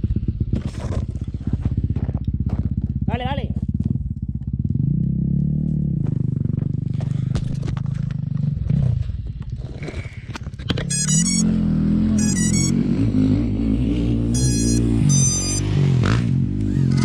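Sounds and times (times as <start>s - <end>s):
dirt bike engine revving: 10.8s - 17.0s.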